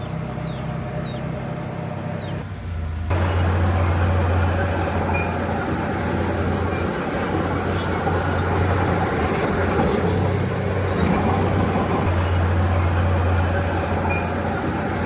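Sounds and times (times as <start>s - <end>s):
heavy diesel machinery running: 0.0s - 15.0s
short high squeaks: 3.2s - 15.0s.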